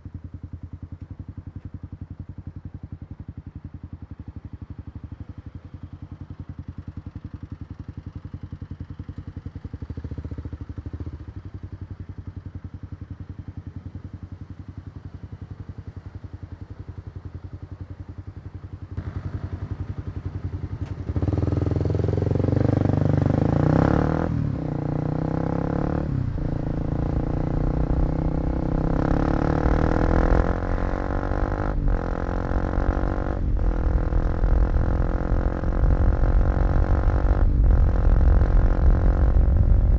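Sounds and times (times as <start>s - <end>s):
motorcycle engine revving: 19.0s - 39.9s.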